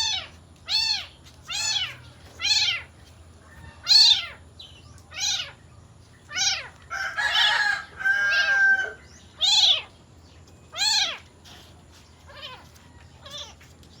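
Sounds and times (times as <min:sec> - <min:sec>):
cat meowing: 0:00.0 - 0:02.9, 0:03.8 - 0:04.4, 0:05.1 - 0:05.6, 0:06.3 - 0:06.8, 0:09.4 - 0:09.9, 0:10.7 - 0:11.6, 0:12.3 - 0:13.7.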